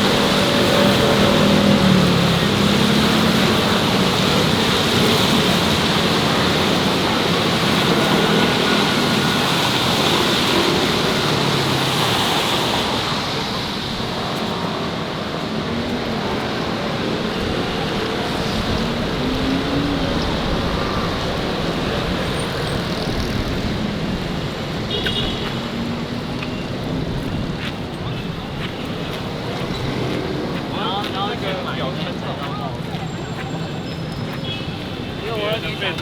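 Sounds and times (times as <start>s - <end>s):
city street traffic: 0.0s - 36.0s.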